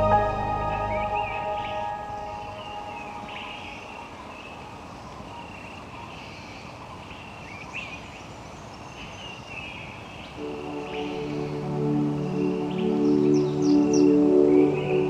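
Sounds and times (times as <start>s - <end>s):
quick sweeping bird notes: 0.0s - 4.0s
steady background hiss: 0.0s - 15.0s.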